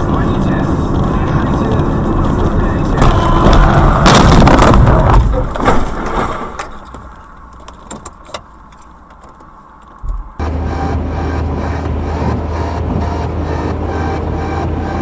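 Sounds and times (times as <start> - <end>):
loud car crash: 3.0 - 6.9
debris clicking and rattling: 4.1 - 8.9
electronic music: 10.4 - 15.0.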